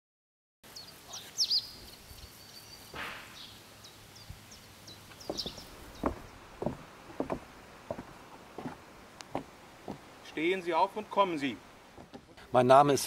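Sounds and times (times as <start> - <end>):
small birds chirping: 0.7 - 12.5
short dull knocks: 5.2 - 10.0.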